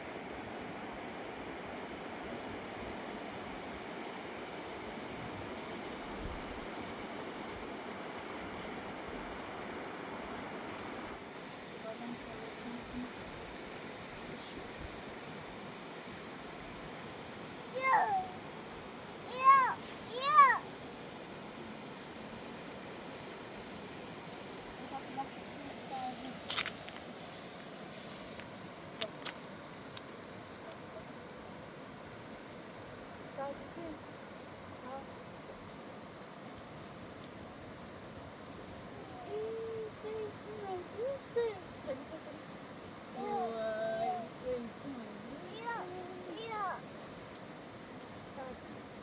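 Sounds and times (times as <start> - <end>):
cricket chirping: 13.3 - 49.0.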